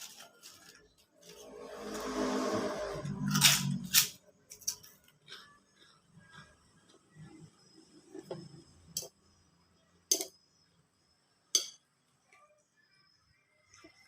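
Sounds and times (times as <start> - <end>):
soft chewing: 4.9 - 7.6.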